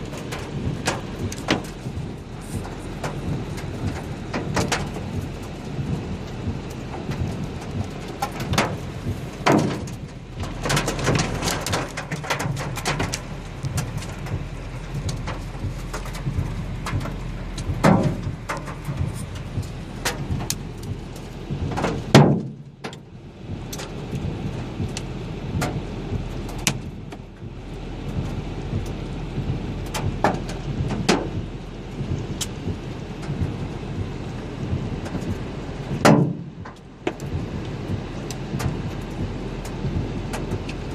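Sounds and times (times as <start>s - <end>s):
hailstone impacts: 0.0s - 23.0s
rain hissing: 0.0s - 40.9s.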